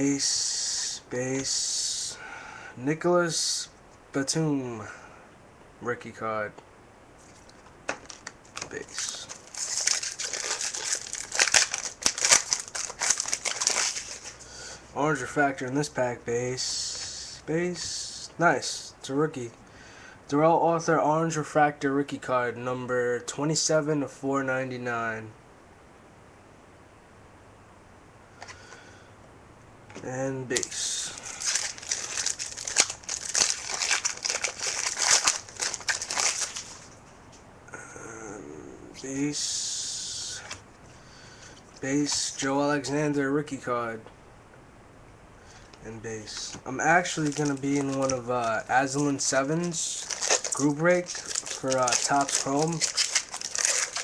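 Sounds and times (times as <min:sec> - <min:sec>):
foil wrapper tearing and crinkling: 0:07.9 - 0:14.4, 0:30.6 - 0:36.9, 0:46.9 - 0:54.0.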